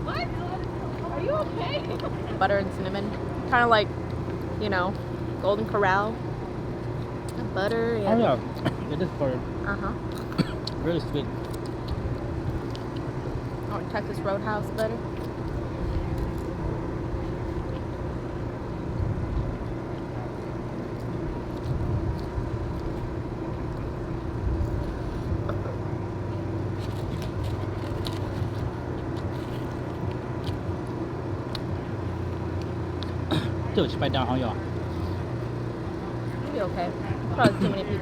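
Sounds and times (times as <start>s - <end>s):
engine idling hum: 0.0s - 38.0s
faint clicks and rustles: 19.9s - 33.2s.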